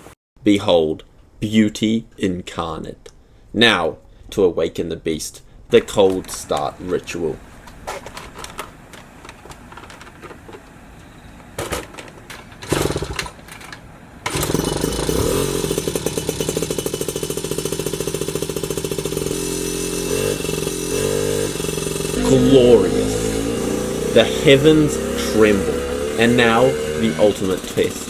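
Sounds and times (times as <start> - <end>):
two-stroke engine puttering: 11.8 - 28.0.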